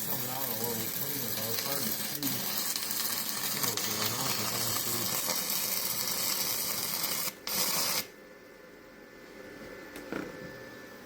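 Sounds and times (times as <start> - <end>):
welding arc crackling sizzle: 0.0 - 8.2.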